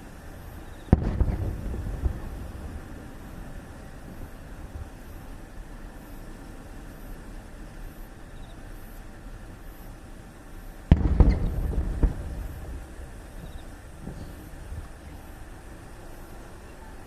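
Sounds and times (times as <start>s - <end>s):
firework shell bursting with boom: 0.8s - 5.0s, 10.8s - 14.9s
rumbling echo: 0.9s - 4.7s, 10.9s - 14.8s
crackling pops: 0.9s - 5.2s, 10.8s - 15.0s.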